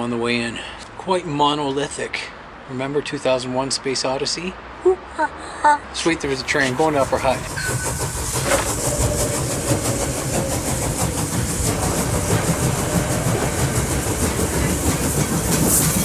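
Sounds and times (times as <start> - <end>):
train rumbling: 6.2 - 16.0
wheels clattering on track: 6.2 - 16.0.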